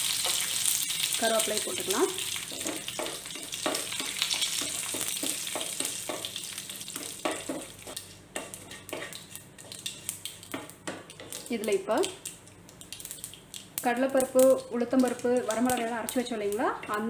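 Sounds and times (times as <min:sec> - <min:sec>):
seeds sizzling in hot oil: 0:00.0 - 0:17.0
spoon scraping a pan: 0:02.4 - 0:06.3, 0:06.9 - 0:11.5.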